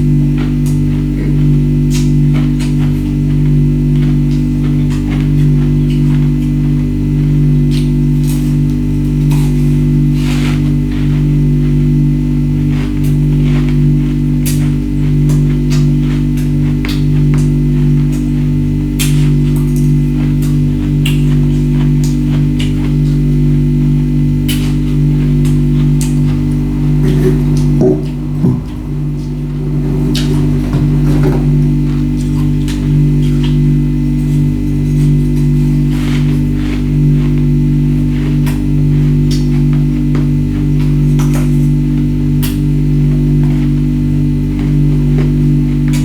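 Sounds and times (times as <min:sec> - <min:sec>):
low background music: 0:24.2 - 0:34.7
loud low drone: 0:24.8 - 0:35.0.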